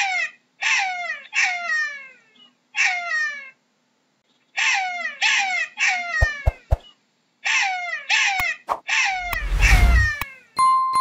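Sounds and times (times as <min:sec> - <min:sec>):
jackal yelping calls: 0:00.0 - 0:03.6.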